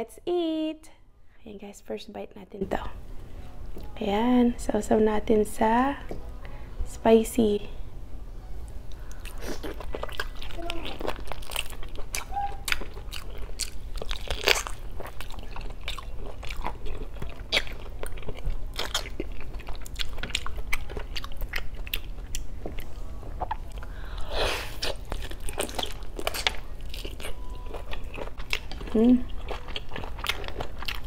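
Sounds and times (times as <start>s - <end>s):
biting and chewing: 9.0s - 23.9s, 24.7s - 31.0s.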